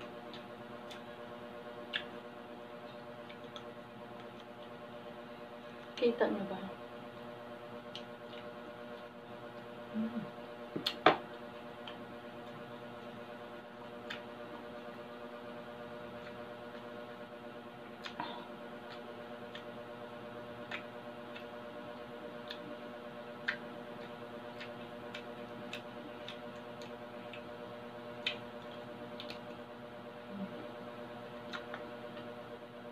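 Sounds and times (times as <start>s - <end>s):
steady background hum: 0.0s - 32.9s
crispy pork crunching in mouth: 17.9s - 29.8s, 31.3s - 32.4s.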